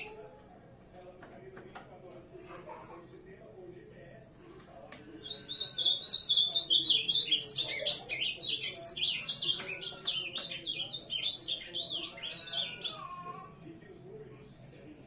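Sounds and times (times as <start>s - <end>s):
bird warbling song: 5.2s - 13.2s.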